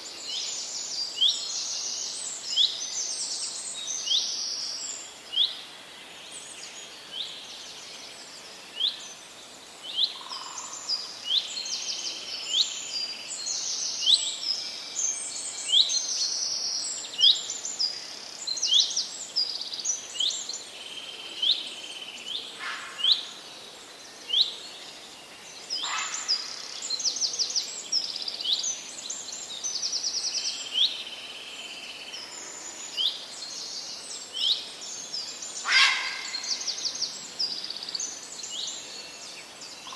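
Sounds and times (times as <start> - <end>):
parrots chirping: 35.6 - 36.4.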